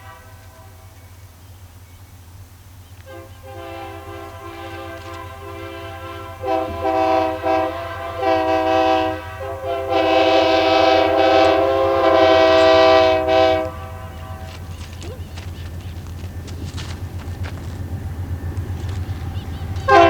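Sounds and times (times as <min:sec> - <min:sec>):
locomotive air horn: 0:00.0 - 0:01.0, 0:03.1 - 0:15.0, 0:19.2 - 0:20.0.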